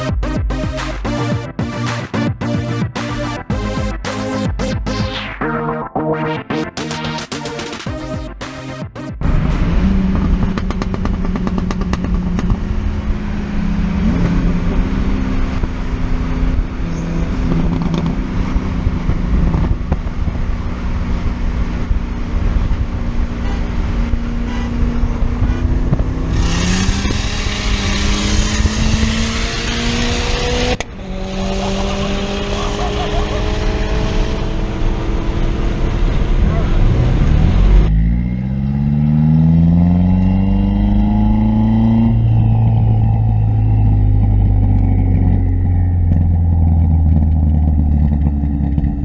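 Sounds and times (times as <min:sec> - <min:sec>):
car engine revving: 0:06.8 - 0:19.8, 0:25.5 - 0:49.0.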